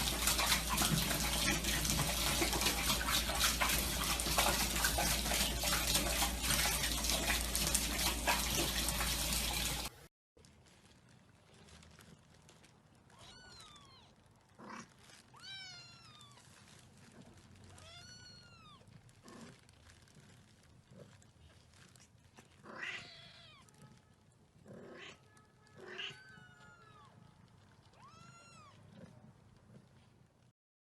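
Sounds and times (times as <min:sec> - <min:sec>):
cat meowing: 0:13.1 - 0:16.6, 0:17.6 - 0:19.0, 0:22.6 - 0:24.2, 0:24.8 - 0:29.2.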